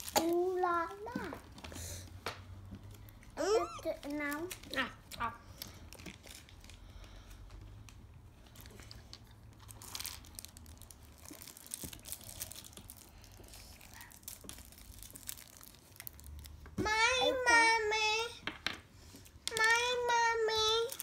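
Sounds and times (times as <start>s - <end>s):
packaging crinkling and rustling: 0.0s - 1.7s, 3.8s - 16.6s.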